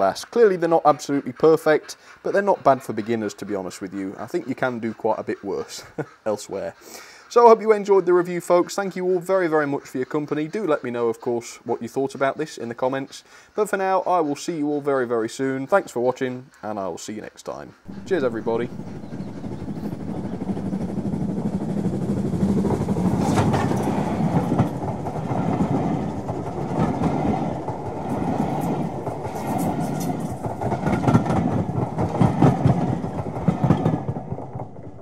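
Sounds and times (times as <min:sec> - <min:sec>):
train carriages rumbling past: 0:17.8 - 0:35.0
wheels knocking over rail joints: 0:17.9 - 0:35.0.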